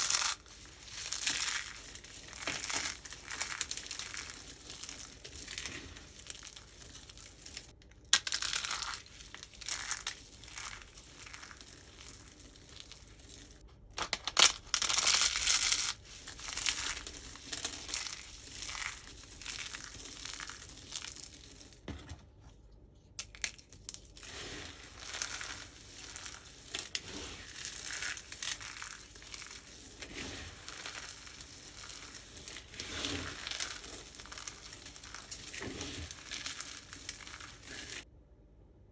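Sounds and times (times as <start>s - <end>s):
soap crunching: 23.2s - 38.0s.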